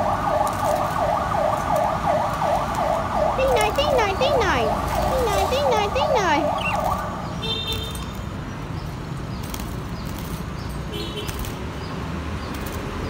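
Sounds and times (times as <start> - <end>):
budgerigars chirping: 3.6 - 7.1.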